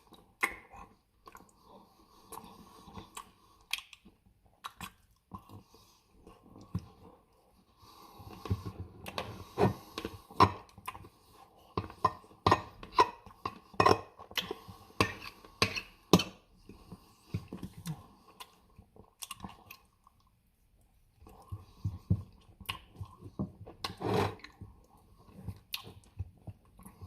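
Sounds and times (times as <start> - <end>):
chewing: 0.0 - 7.2, 12.9 - 27.0
wet mouth smacks: 3.2 - 4.0.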